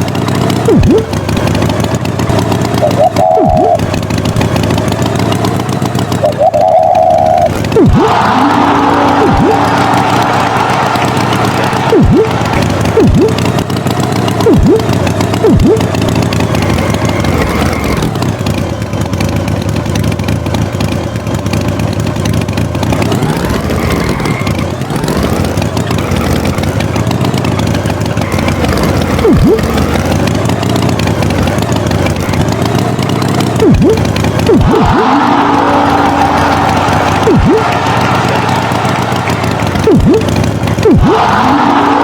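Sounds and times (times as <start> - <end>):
tractor engine revving: 0.0 - 42.0
short thumps dropping in pitch: 14.4 - 16.0.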